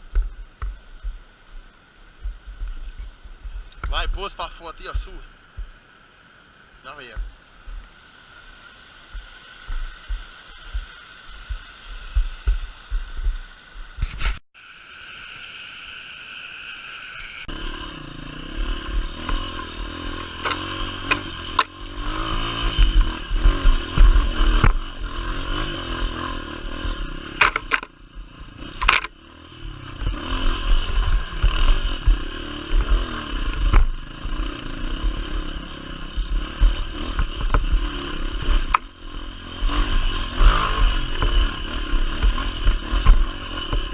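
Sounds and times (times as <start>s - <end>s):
motorcycle engine running: 0.0s - 5.8s, 6.8s - 14.4s, 17.2s - 43.9s
sharp knocks and rattles: 27.4s - 28.0s, 28.8s - 29.2s.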